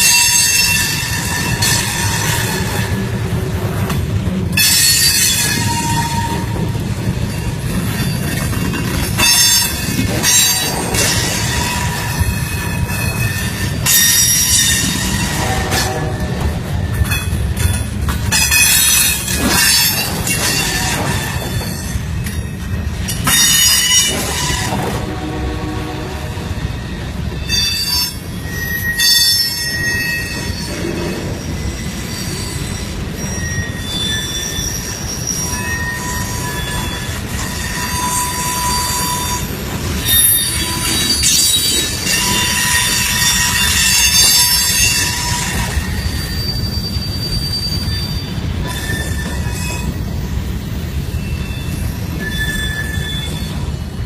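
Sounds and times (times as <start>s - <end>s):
freight train rumbling: 0.0s - 54.0s
train wheels squealing on rails: 0.0s - 54.0s.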